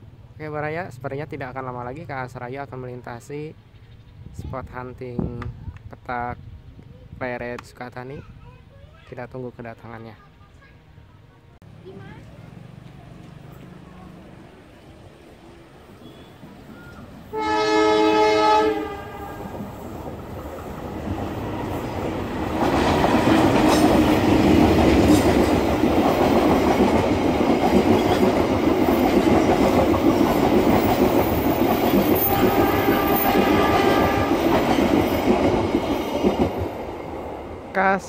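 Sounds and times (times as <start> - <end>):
train horn blast: 17.3 - 19.6, 32.2 - 34.6
train wheels rumbling and clattering: 19.4 - 37.8.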